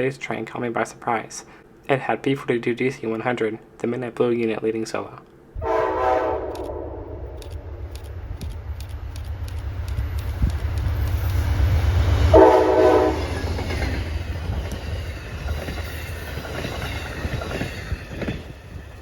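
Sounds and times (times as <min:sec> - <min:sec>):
train horn blast: 0:05.6 - 0:07.7, 0:12.3 - 0:13.4
diesel locomotive rumble: 0:05.6 - 0:19.0
train wheels clicking on rails: 0:06.4 - 0:19.0.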